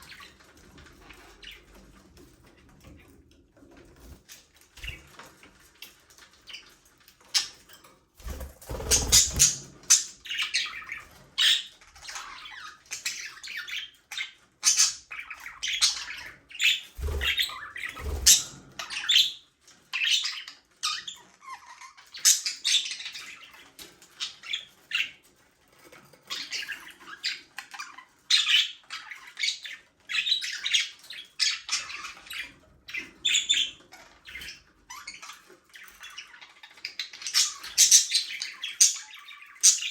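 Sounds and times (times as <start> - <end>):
budgerigars chattering: 8.7 - 19.4.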